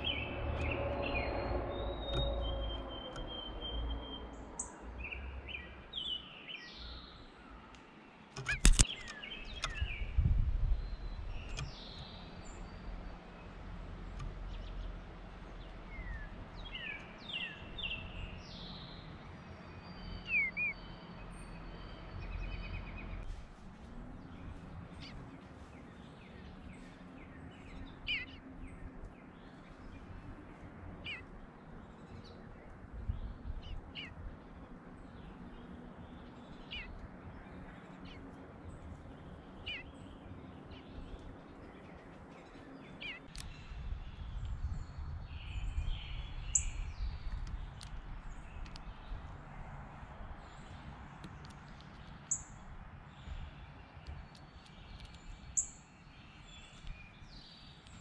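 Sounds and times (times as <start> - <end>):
birds chirping and whistling: 0.0 - 7.3, 8.4 - 13.1, 15.8 - 19.1, 19.7 - 23.2, 24.4 - 30.1, 31.0 - 31.3, 33.1 - 34.3, 35.1 - 49.2, 53.2 - 58.0.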